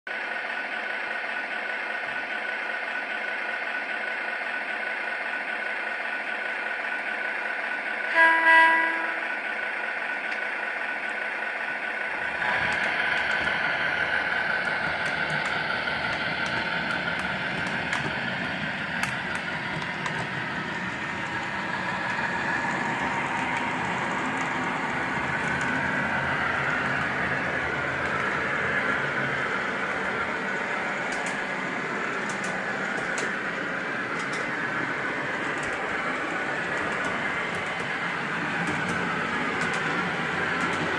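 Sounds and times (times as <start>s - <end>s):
train rumbling along track: 0.1s - 40.9s
model train electronic horn: 8.1s - 9.5s
wheels clicking over rail joints: 12.1s - 40.9s.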